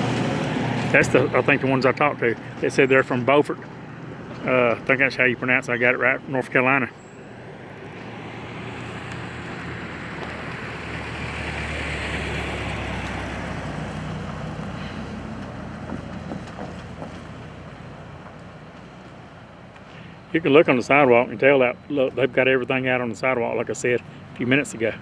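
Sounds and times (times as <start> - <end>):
vehicle driving past: 0.0 - 22.6.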